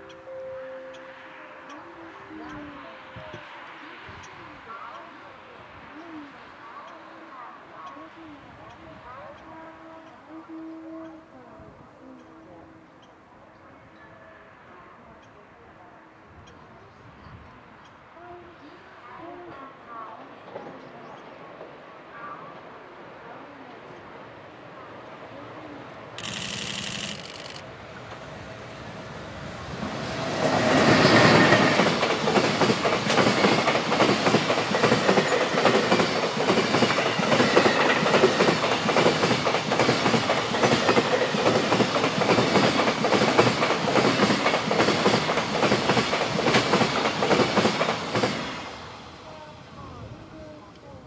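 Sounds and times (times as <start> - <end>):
freight train passing: 0.0 - 51.0.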